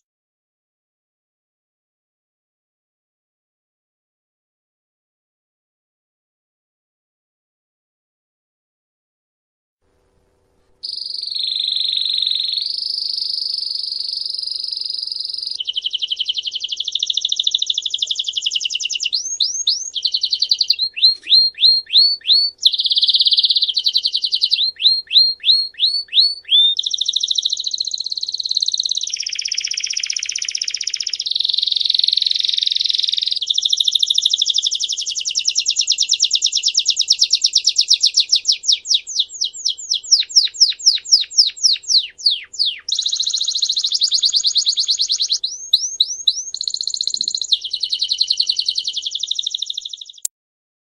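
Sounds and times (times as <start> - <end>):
songbird singing trills: 10.8 - 50.3.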